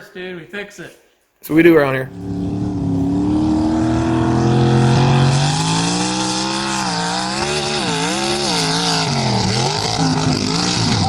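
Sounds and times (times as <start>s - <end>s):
car engine revving: 2.0s - 11.0s.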